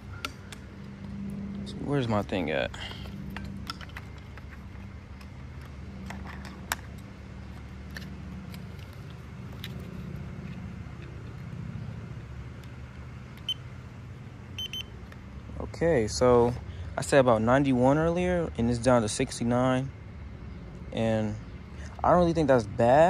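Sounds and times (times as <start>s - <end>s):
steady low hum: 0.0s - 23.0s
handling clicks and rattles: 3.0s - 11.5s
short high beeps: 14.6s - 14.9s.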